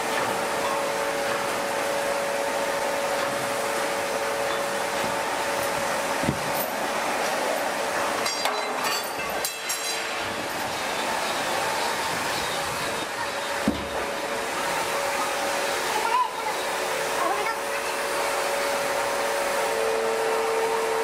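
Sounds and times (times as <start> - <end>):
hydraulic press humming and hissing: 0.0 - 21.0
metallic clanks and rattles: 8.2 - 10.2.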